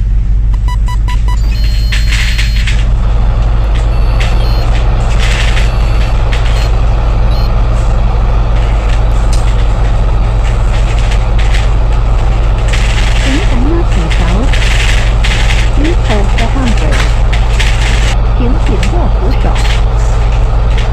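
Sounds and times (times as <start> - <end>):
bus engine droning: 0.0 - 20.9.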